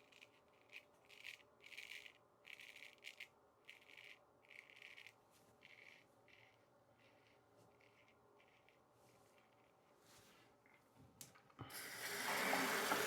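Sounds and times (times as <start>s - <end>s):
razor scraping stubble: 0.0s - 9.8s.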